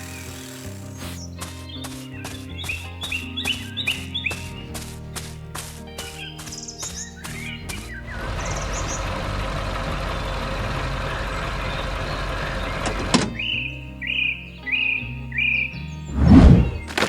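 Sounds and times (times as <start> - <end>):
harvester machine running: 0.0 - 1.2, 7.4 - 13.5, 16.1 - 17.0
birds chirping: 0.0 - 17.0
soft background music: 0.0 - 17.0.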